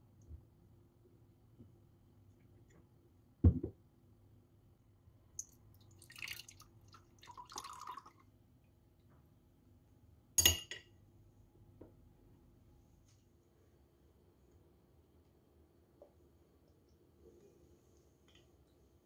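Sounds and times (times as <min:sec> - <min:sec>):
dull knock on object: 0:03.4 - 0:03.8.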